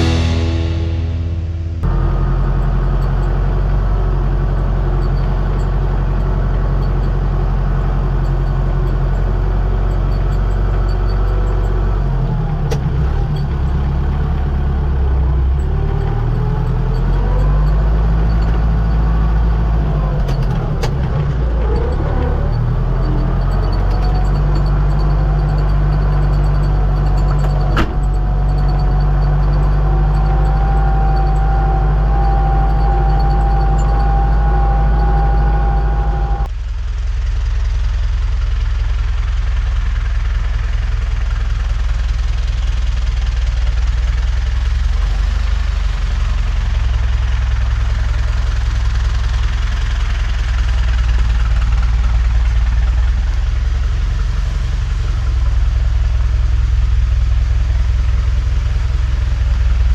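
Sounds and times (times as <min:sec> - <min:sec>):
high whine: 0:00.0 - 0:36.5
diesel engine droning: 0:00.0 - 0:59.9
click: 0:12.7 - 0:13.6.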